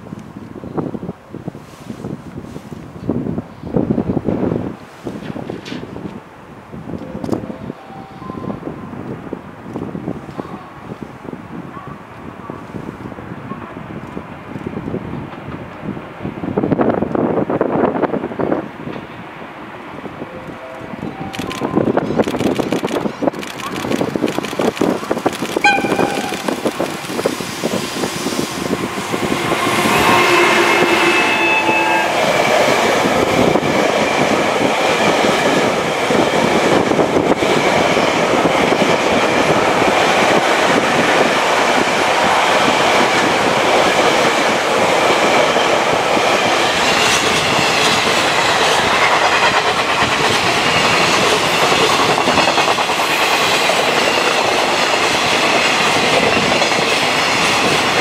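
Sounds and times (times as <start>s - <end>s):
freight train passing: 0.0s - 58.0s
train cars rumbling: 13.0s - 58.0s
locomotive horn: 25.6s - 26.8s, 28.8s - 32.5s.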